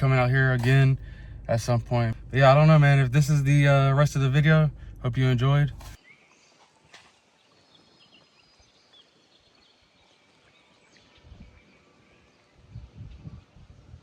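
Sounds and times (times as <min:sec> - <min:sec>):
wind buffeting microphone: 0:11.1 - 0:11.7, 0:12.5 - 0:14.0.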